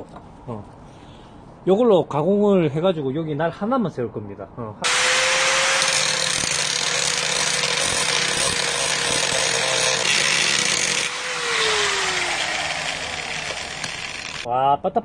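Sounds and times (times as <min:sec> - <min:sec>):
angle grinder motor whine: 0:04.9 - 0:14.5.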